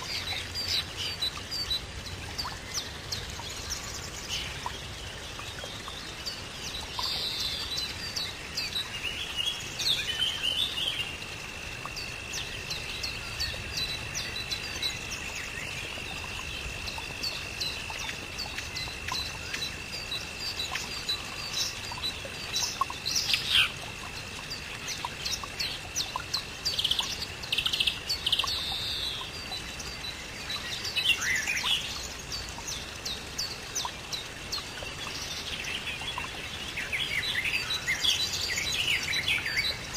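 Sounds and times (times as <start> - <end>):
birds chirping and calling: 18.0 - 23.8.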